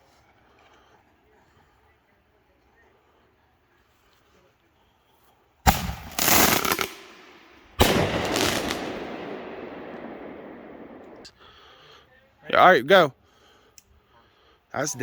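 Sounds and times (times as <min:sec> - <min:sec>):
firework bangs: 0:05.7 - 0:11.3
firework crackling: 0:05.7 - 0:11.3.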